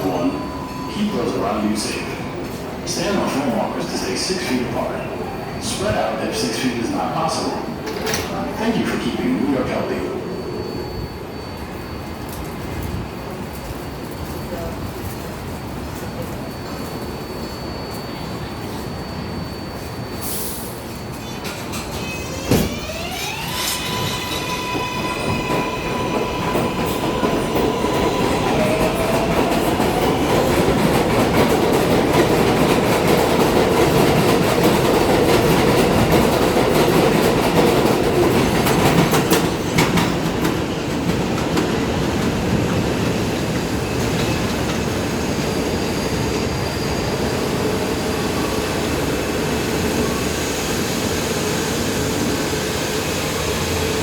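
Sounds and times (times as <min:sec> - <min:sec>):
subway train running: 0:00.0 - 0:54.0
rail clacks: 0:21.0 - 0:48.5.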